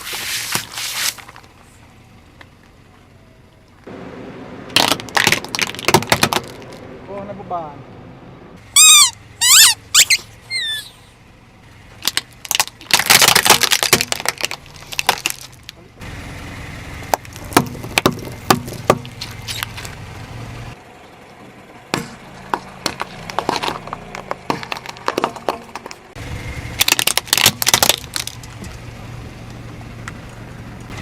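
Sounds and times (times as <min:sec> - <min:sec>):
objects crushed under car tyre: 0:04.7 - 0:06.8, 0:12.0 - 0:15.8, 0:17.1 - 0:20.0, 0:21.9 - 0:28.8
high squeaks: 0:08.7 - 0:11.1, 0:19.1 - 0:19.9.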